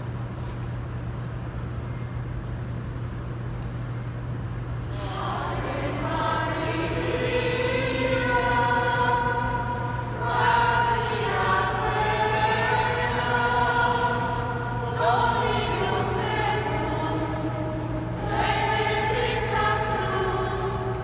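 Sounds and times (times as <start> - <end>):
steady low hum: 0.0 - 21.0
choir singing sacred music: 4.9 - 21.0.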